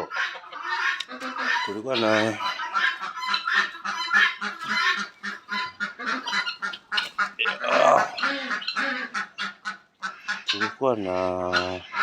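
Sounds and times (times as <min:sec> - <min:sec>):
fowl honking calls: 0:00.0 - 0:12.0.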